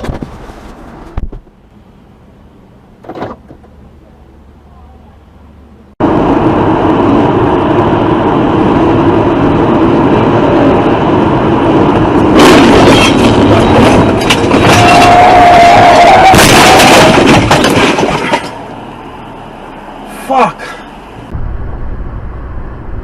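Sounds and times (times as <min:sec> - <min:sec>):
road and wind noise: 0:00.0 - 0:23.0
clatter of knocks and rattles: 0:16.4 - 0:18.6.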